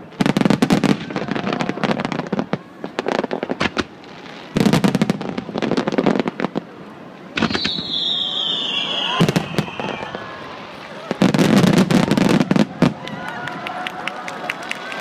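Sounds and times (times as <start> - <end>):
firework bangs and crackles: 0.0 - 14.0
high whistling tone: 7.4 - 10.5.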